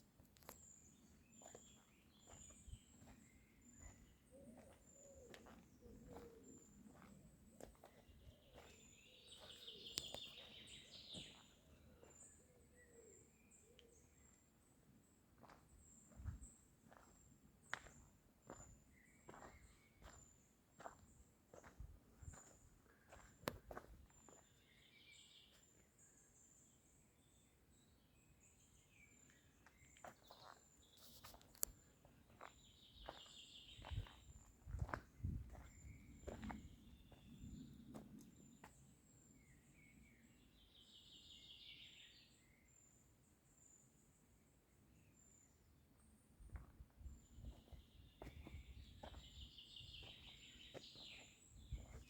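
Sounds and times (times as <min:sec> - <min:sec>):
faint bird chirping: 0:00.4 - 0:52.0
bird chirps: 0:00.5 - 0:07.1, 0:07.7 - 0:14.3, 0:32.3 - 0:37.6, 0:47.4 - 0:52.0.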